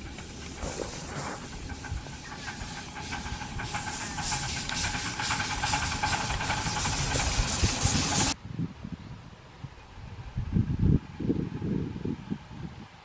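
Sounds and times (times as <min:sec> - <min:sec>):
steam locomotive hissing and chuffing: 0:00.0 - 0:08.4.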